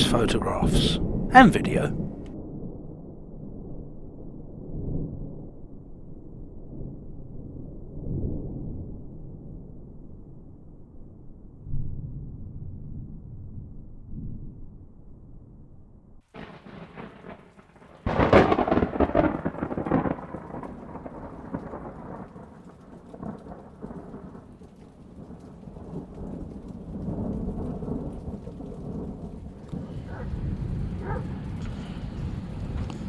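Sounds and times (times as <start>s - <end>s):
rain falling: 0.0s - 2.0s, 16.4s - 33.0s
thunder rumbling: 0.0s - 2.6s, 16.4s - 33.0s.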